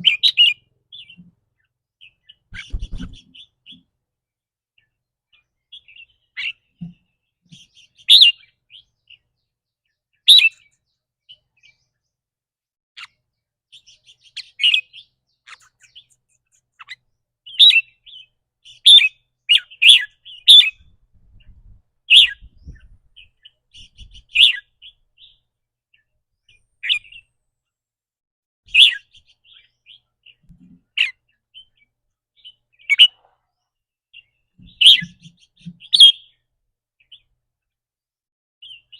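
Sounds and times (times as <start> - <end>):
bulbul sharp calls: 0.0 - 1.3, 2.0 - 3.8, 5.7 - 8.8, 10.3 - 10.7, 13.0 - 20.9, 22.1 - 25.4, 28.7 - 31.8, 32.4 - 33.4, 34.2 - 36.4.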